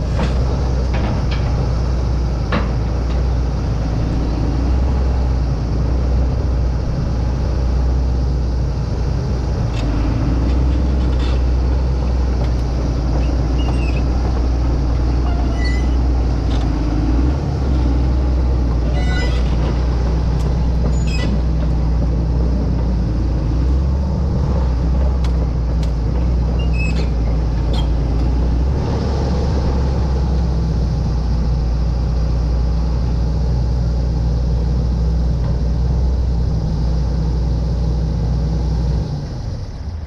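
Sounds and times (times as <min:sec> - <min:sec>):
excavator diesel engine running: 0:00.0 - 0:40.0
sharp clinks or squeaks: 0:15.3 - 0:16.0.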